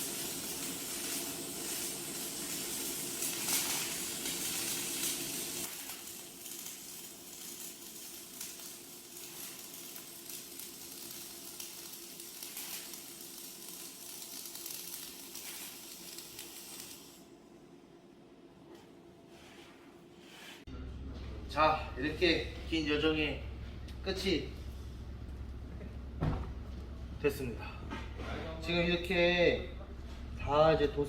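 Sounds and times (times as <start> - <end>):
paint spray gun hissing: 0.0 - 6.1
steady machine hum: 20.7 - 31.0.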